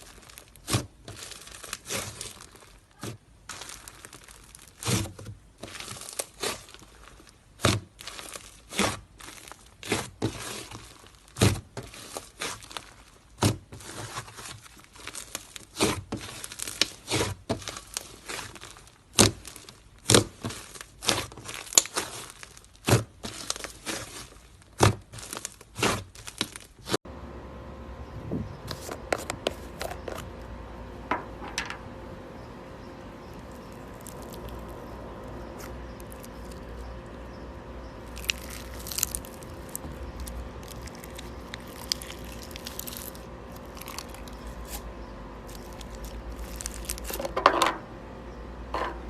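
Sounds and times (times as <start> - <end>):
slime crinkling and popping: 0.0 - 27.0, 33.5 - 34.9, 35.5 - 36.8, 38.0 - 47.4.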